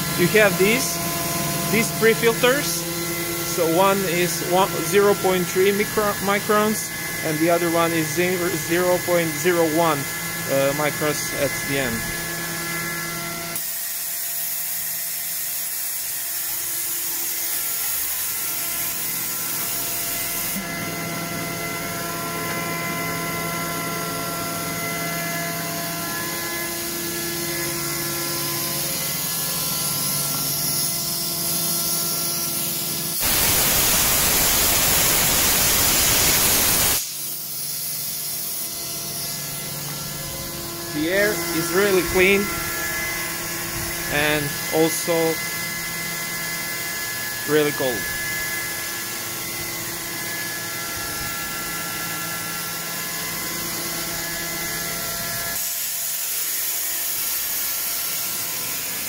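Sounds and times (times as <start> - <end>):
air compressor humming: 0.0 - 15.4, 18.0 - 50.0
loud hiss of escaping air: 33.2 - 38.4.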